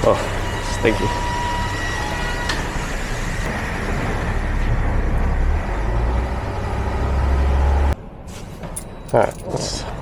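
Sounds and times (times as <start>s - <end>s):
diesel engine running: 0.0s - 8.0s.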